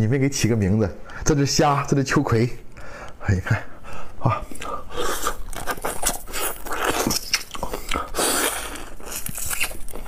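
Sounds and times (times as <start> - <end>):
crunchy chewing: 4.5 - 10.0.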